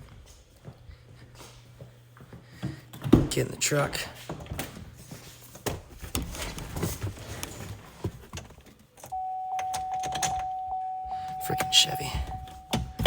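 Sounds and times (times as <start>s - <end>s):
truck warning chime: 9.1s - 13.0s.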